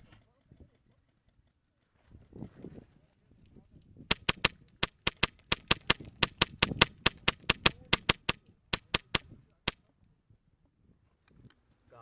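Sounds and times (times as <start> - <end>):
airsoft gun shots: 4.1 - 9.3.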